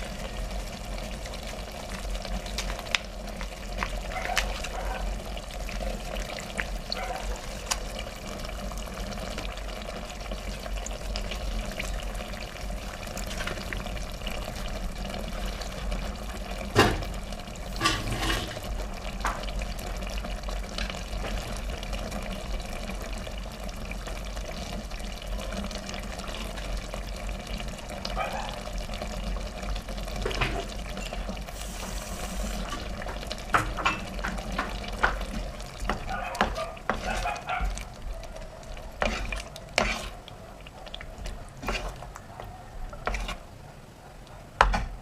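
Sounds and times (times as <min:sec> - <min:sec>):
water pouring steadily: 0:00.0 - 0:43.6.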